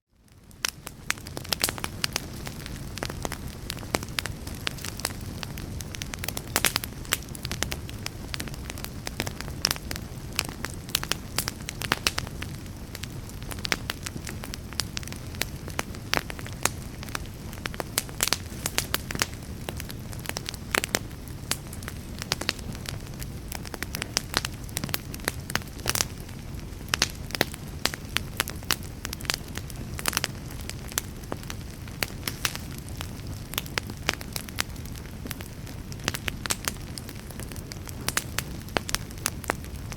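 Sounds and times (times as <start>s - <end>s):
wood fire crackling: 0.1s - 39.9s.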